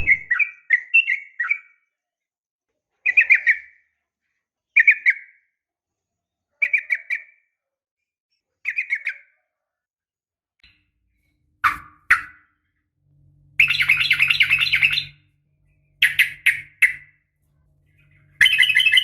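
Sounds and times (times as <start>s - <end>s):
bird chirping calls: 0.0s - 1.8s, 11.6s - 12.5s, 13.5s - 17.2s, 17.8s - 19.0s.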